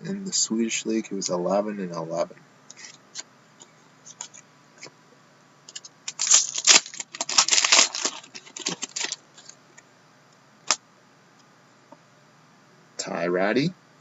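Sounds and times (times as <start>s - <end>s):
trading cards rustling and scraping: 4.0s - 4.9s, 5.7s - 9.6s.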